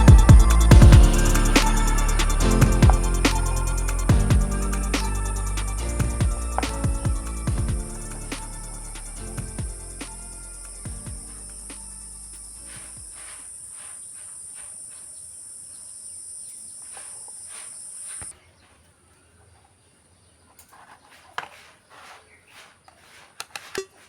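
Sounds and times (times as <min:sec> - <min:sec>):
high-pitched hiss: 0:00.0 - 0:18.3.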